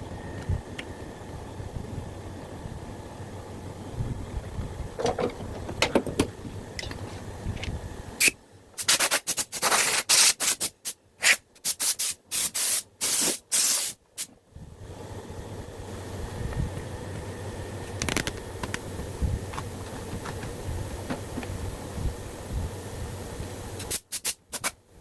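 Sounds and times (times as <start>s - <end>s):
compressed air hiss bursts: 8.2s - 14.3s, 21.0s - 24.8s.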